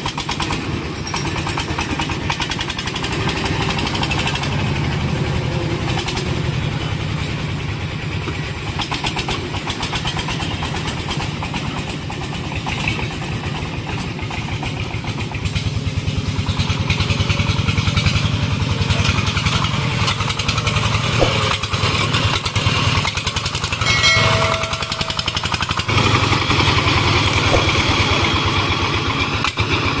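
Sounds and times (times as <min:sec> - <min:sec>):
diesel engine thudding: 0:00.0 - 0:30.0
brief high tone: 0:23.8 - 0:25.7.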